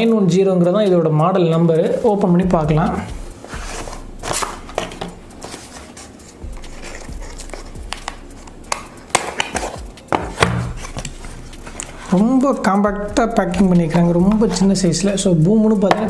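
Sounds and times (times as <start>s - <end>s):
packaging rustling and scraping: 2.9s - 12.7s
sharp clicks and taps: 6.3s - 12.8s, 13.4s - 16.0s.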